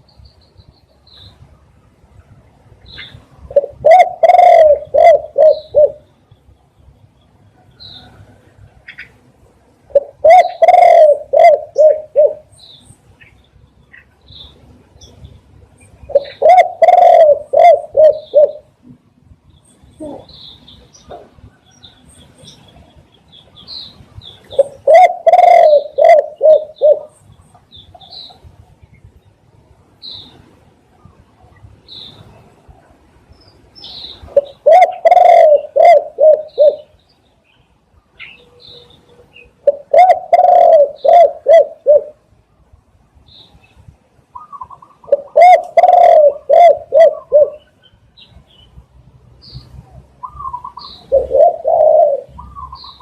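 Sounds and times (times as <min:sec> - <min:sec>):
dove cooing: 0:03.0 - 0:06.1, 0:09.9 - 0:12.6, 0:16.1 - 0:18.8, 0:20.0 - 0:20.4, 0:24.5 - 0:27.2, 0:34.2 - 0:36.9, 0:39.6 - 0:42.2, 0:44.4 - 0:47.8, 0:49.7 - 0:53.0.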